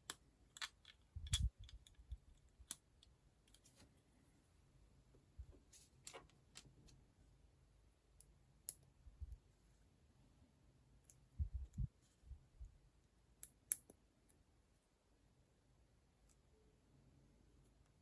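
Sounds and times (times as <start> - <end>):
plastic building blocks clicking: 0.0 - 3.6.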